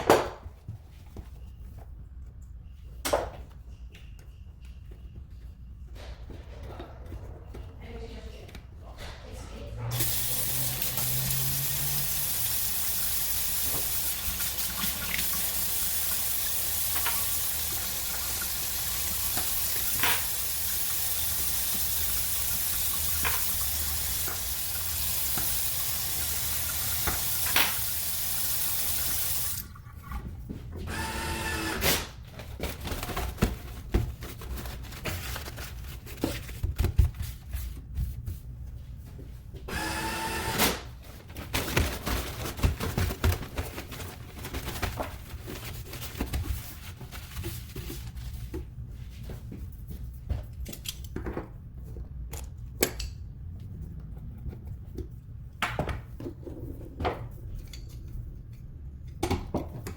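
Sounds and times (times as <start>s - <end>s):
faucet running into sink: 9.9s - 29.8s.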